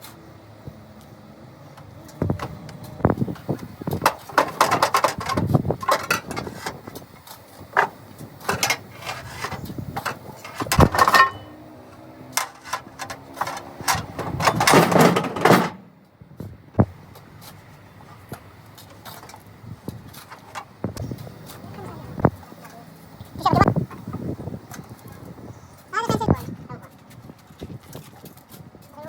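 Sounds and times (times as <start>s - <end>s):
workshop knocks and clanks: 2.1s - 17.2s.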